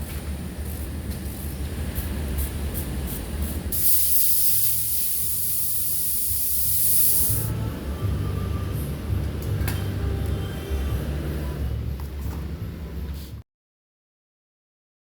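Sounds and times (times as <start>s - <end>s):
spray gun hissing: 3.1s - 7.5s.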